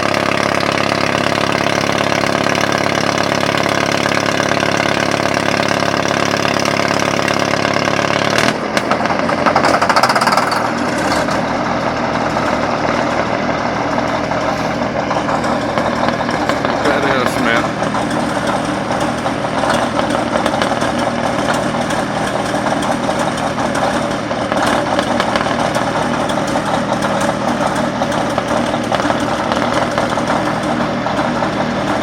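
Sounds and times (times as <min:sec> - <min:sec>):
crawler tractor engine running: 0:00.0 - 0:32.0.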